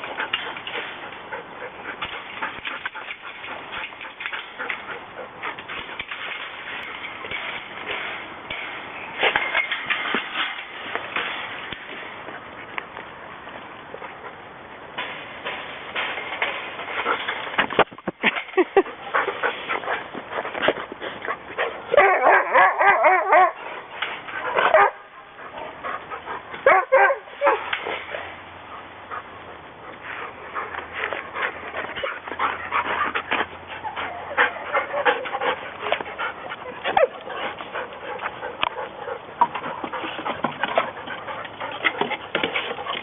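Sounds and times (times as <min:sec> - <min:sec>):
dogs whining and yipping: 0:21.6 - 0:28.4, 0:30.5 - 0:43.0.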